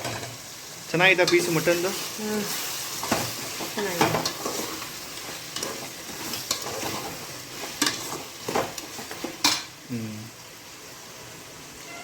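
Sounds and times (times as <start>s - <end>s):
food sizzling in oil: 0.0s - 12.0s
spoon scraping pan: 1.2s - 9.7s.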